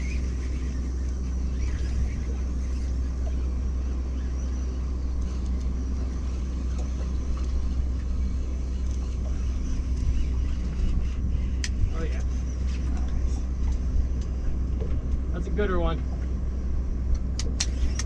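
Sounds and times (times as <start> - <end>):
boat engine idling: 0.0 - 18.0
small clicks: 5.2 - 5.7, 17.1 - 18.0.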